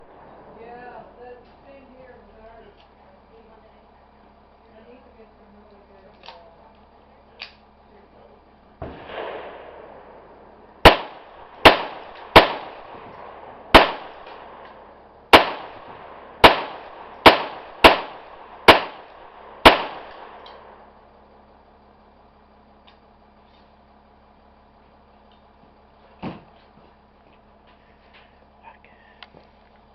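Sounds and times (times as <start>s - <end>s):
pistol shots: 8.8s - 21.0s
dull thump: 26.2s - 26.6s.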